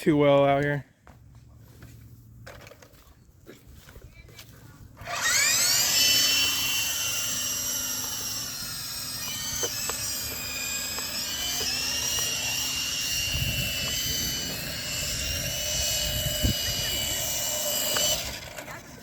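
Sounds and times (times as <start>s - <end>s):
toy helicopter motor whining: 5.0s - 19.0s.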